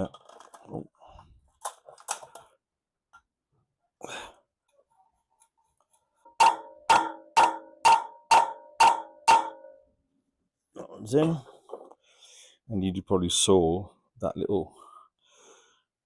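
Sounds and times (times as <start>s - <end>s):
hammer striking metal: 6.4s - 9.8s.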